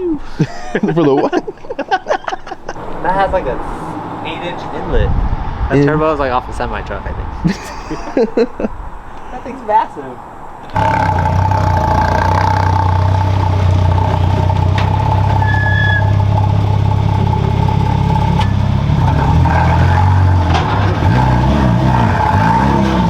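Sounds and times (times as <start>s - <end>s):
car engine running steadily: 10.8s - 23.0s.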